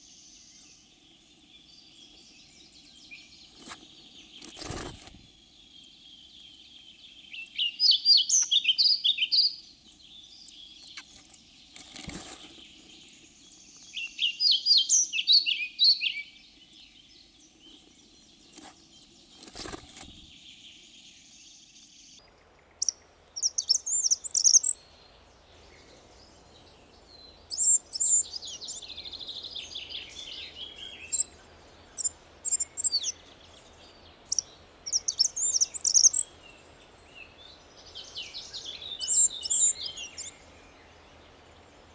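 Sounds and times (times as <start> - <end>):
bird singing warbled phrases: 0.0 - 41.9
high thin squeaky bird calls: 23.4 - 24.8, 32.0 - 33.2, 34.3 - 36.2.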